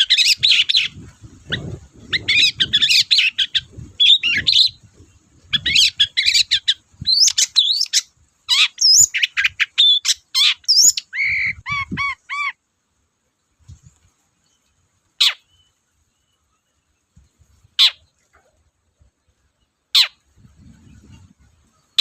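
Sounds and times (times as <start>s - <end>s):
bird singing chirps and whistles: 0.0s - 4.9s, 5.5s - 12.6s, 15.2s - 16.4s.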